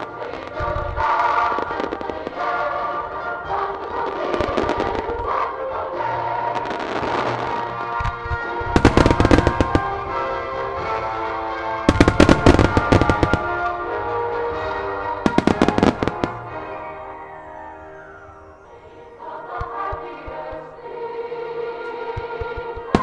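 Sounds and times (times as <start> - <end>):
fireworks bursting and crackling: 0.0 - 20.6, 22.0 - 23.0
music: 0.0 - 23.0.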